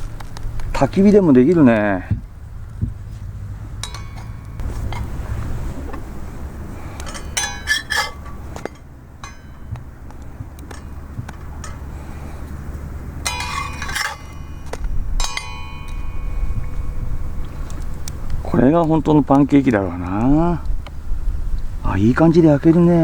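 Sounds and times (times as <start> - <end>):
steady low rumble: 0.0 - 23.0
utensils clinking on cookware: 3.8 - 5.2, 5.8 - 17.6.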